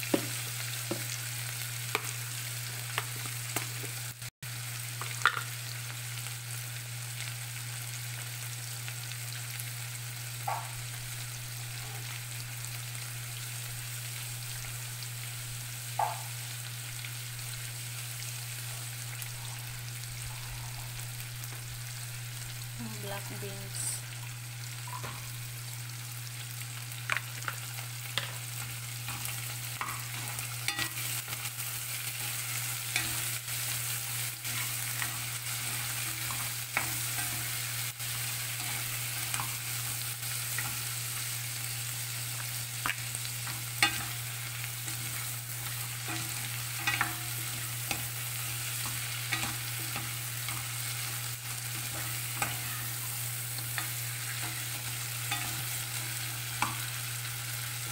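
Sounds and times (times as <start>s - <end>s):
food sizzling in oil: 0.0s - 57.9s.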